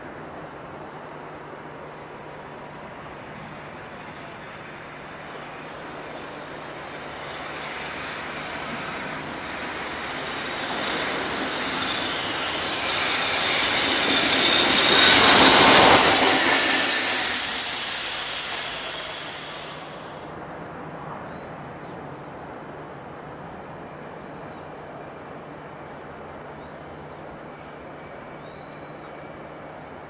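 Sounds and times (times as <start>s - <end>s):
locomotive passing: 0.2s - 20.4s
high wheel squeal: 5.3s - 20.3s.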